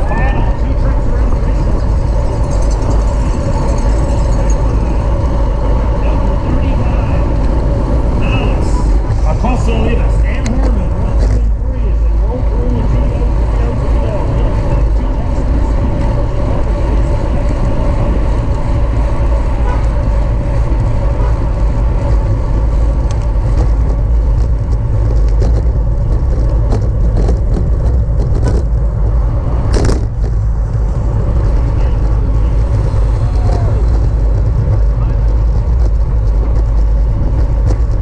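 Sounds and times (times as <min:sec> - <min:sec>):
road and bike noise: 0:00.0 - 0:38.0
wind rumble on microphone: 0:00.0 - 0:38.0.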